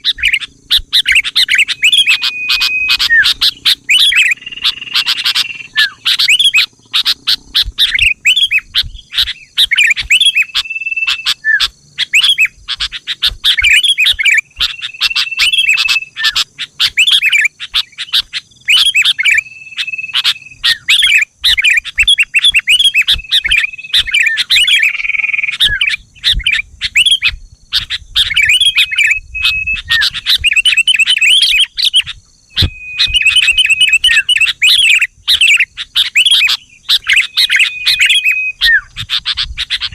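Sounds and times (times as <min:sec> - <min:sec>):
bird chirping: 0:00.0 - 0:39.9
held whistled bird note: 0:00.0 - 0:39.9.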